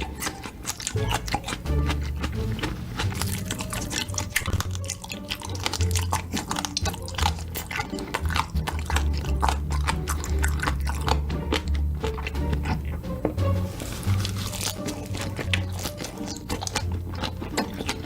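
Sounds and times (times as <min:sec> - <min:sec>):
wet chewing and mouth clicks: 0:00.0 - 0:18.0
background music with bassline: 0:04.1 - 0:15.8.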